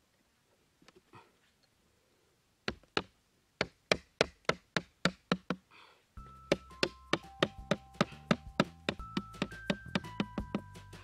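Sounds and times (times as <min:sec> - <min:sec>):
background music: 0:06.2 - 0:11.0
machete knocking on wooden stake: 0:06.5 - 0:10.6.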